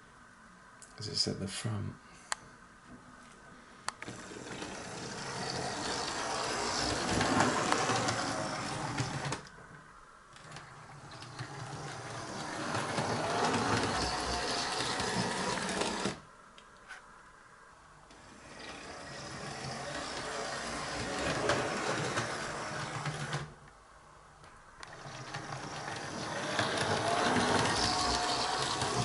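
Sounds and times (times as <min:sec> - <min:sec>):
model locomotive whirring on track: 0:04.0 - 0:09.5, 0:10.4 - 0:16.2, 0:18.1 - 0:23.6, 0:24.8 - 0:29.0.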